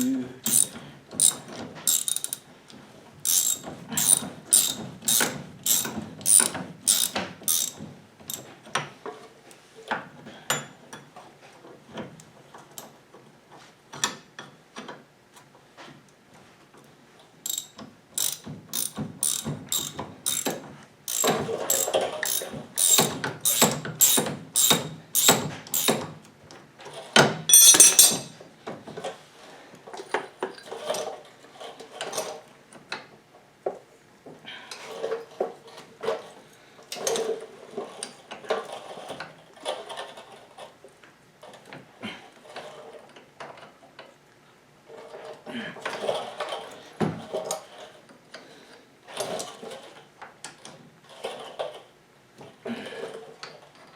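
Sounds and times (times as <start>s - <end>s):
ratchet wrench clicking: 0.5s - 2.4s, 3.3s - 8.4s, 17.5s - 26.0s, 27.5s - 28.3s
tools knocking on metal: 27.5s - 28.4s.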